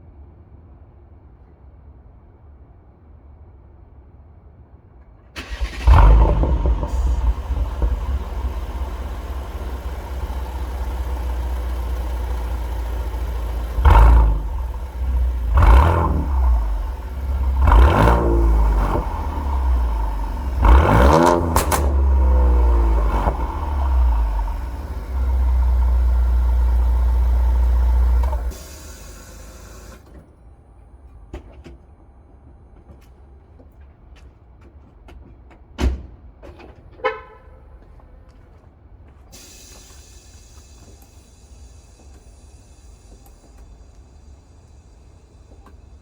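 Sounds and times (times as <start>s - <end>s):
car engine revving and idling: 5.4s - 30.0s.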